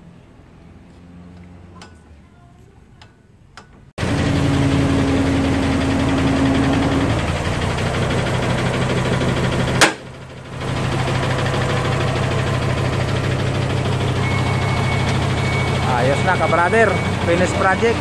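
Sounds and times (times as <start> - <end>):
diesel truck engine running: 3.8 - 18.0
sharp click: 9.8 - 10.0.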